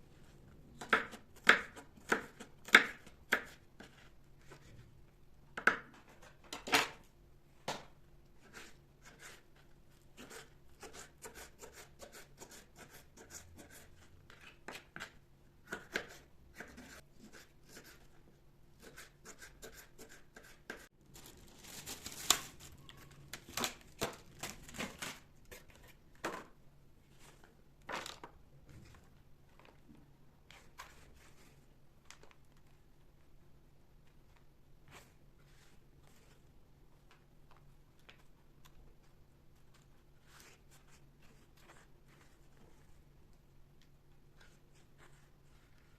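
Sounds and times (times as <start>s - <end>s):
rustling: 21.0s - 23.8s.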